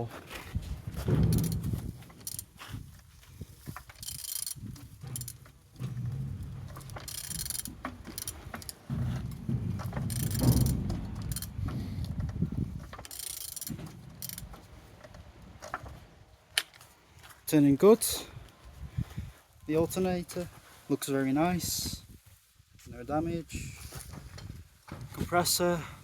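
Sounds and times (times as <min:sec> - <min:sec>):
engine internals rumbling: 0:00.0 - 0:17.0.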